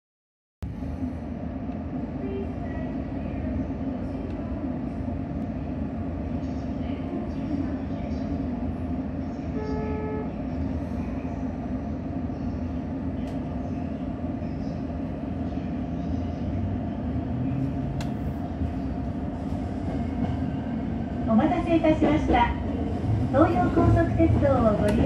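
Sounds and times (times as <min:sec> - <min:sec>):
train motors and wheels rumbling: 0:00.6 - 0:25.0
brief pitched tone: 0:09.6 - 0:10.4.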